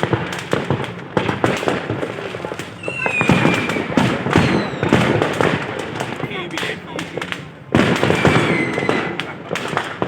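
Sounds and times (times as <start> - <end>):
fireworks bangs and crackling: 0.0 - 10.0
firework whistle gliding downward: 2.8 - 5.4, 7.9 - 9.3.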